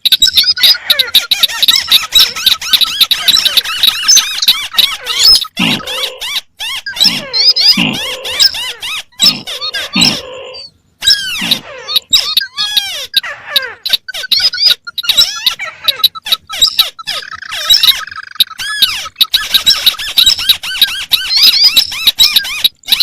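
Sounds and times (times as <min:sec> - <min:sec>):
squeaky bird chirps: 0:00.0 - 0:23.0.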